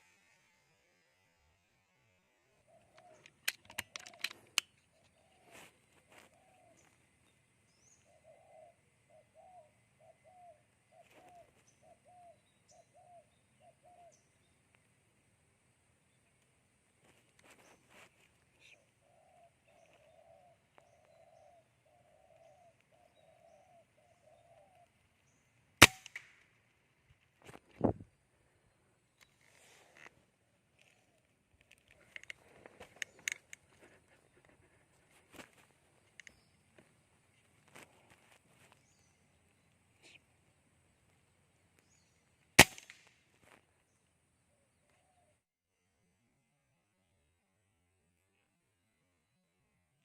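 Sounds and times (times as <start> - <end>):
dove cooing: 2.7 - 4.2, 5.1 - 7.0, 8.0 - 14.1, 18.6 - 24.9
sharp clicks: 2.9 - 4.8, 25.8 - 26.4
air rifle shot: 25.8 - 26.3, 42.6 - 43.1.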